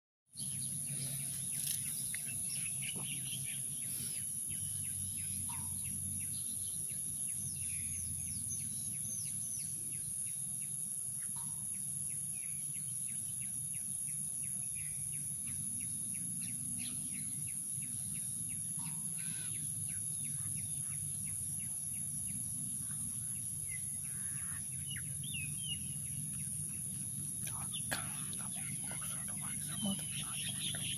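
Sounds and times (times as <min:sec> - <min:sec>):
birds chirping: 0:00.4 - 0:10.0, 0:16.1 - 0:30.9
insects droning: 0:00.4 - 0:30.9.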